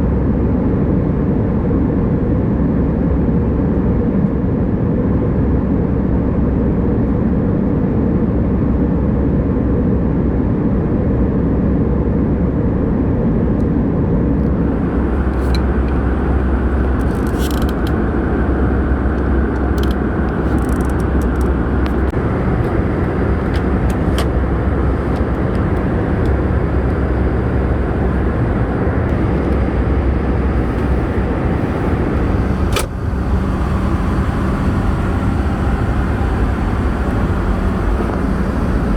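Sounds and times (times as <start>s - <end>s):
aircraft cabin engine rumble: 0.0s - 38.9s
light clicks and rattles: 16.8s - 18.0s, 19.2s - 22.8s.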